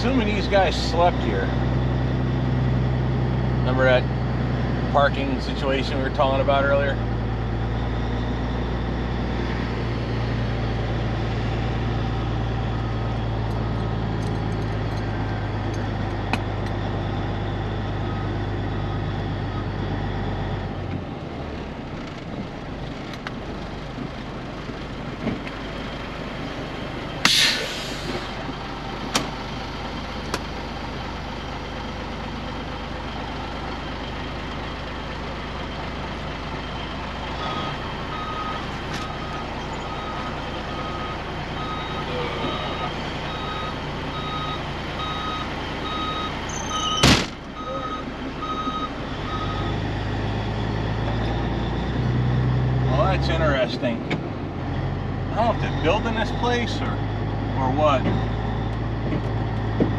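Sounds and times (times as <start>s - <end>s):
diesel truck engine running: 0.0s - 59.9s
air brake hiss: 27.2s - 28.4s.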